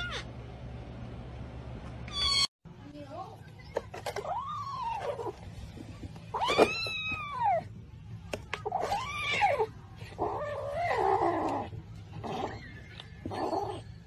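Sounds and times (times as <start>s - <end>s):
cat yowling: 0.0s - 0.3s, 6.3s - 7.7s, 8.6s - 14.0s.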